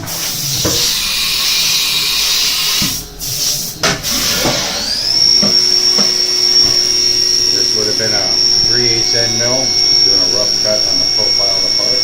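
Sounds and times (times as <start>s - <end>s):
spindle whine: 0.0s - 12.0s
steady hiss: 0.0s - 12.0s
tool changer knocks: 3.8s - 4.8s.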